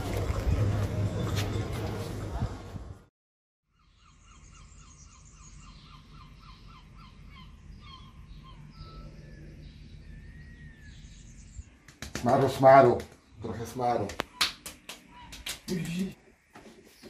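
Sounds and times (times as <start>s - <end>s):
birds chirping: 3.7s - 17.0s.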